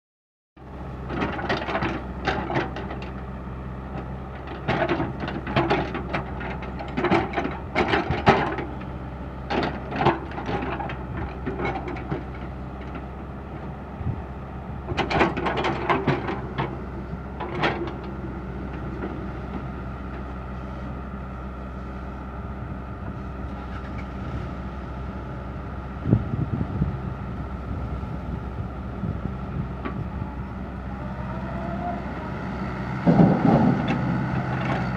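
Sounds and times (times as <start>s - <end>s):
excavator engine running: 0.6s - 34.9s.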